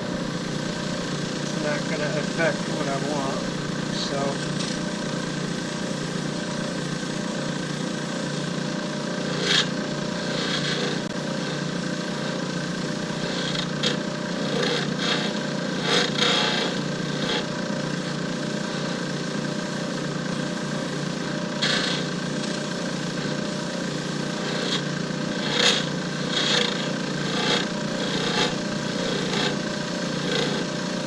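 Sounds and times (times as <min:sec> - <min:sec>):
lathe motor humming: 0:00.0 - 0:31.0
turning tool scraping metal: 0:08.1 - 0:31.0.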